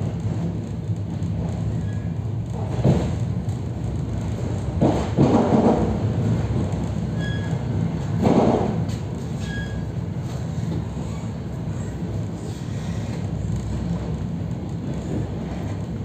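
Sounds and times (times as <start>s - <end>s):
train steady low hum: 0.0s - 16.0s.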